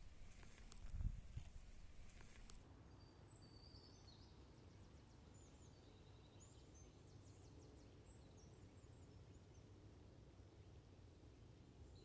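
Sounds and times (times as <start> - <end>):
faint bird chirps and trills: 0.0 - 10.8, 11.7 - 12.0.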